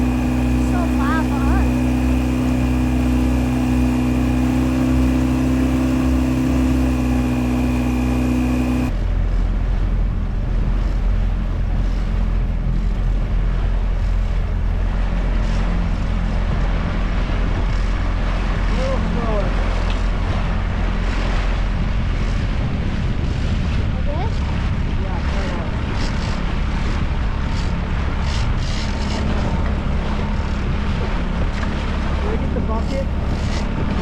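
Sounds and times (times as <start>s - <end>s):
outboard motor running: 0.0s - 34.0s
wind and water rushing: 0.0s - 34.0s.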